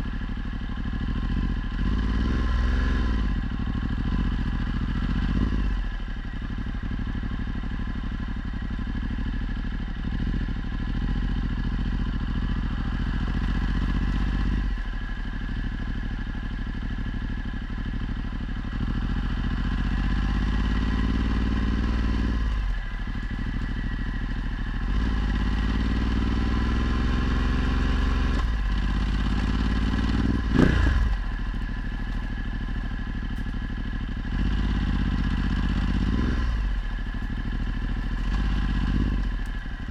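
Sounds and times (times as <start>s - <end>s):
motorcycle engine shifting gears: 12.2s - 39.9s.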